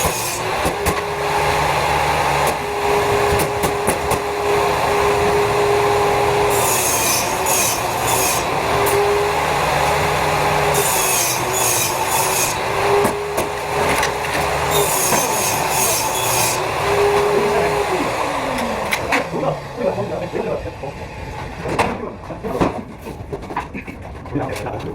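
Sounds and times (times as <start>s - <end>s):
hand saw cutting wood: 0.0s - 20.0s.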